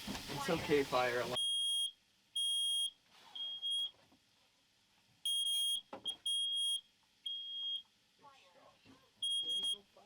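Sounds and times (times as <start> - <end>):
smoke alarm beeping: 1.4 - 4.0, 5.2 - 7.9, 9.2 - 9.9.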